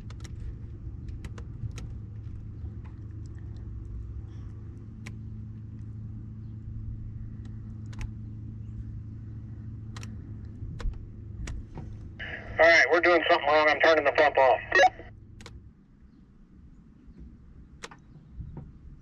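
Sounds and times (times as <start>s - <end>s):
faint clicks: 7.3s - 8.2s
higher hum: 12.2s - 15.1s.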